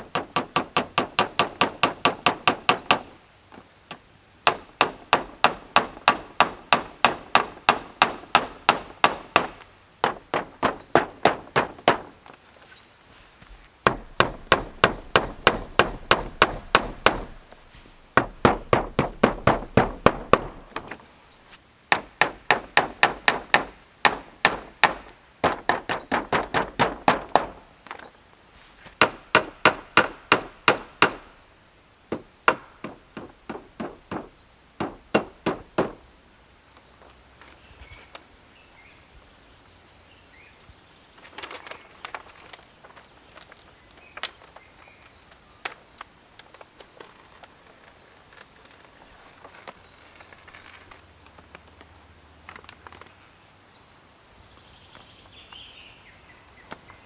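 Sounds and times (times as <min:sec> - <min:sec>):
hand tool striking wood: 0:00.0 - 0:03.1, 0:04.5 - 0:12.2, 0:13.8 - 0:21.0, 0:21.9 - 0:27.6, 0:28.9 - 0:31.3, 0:32.1 - 0:36.0.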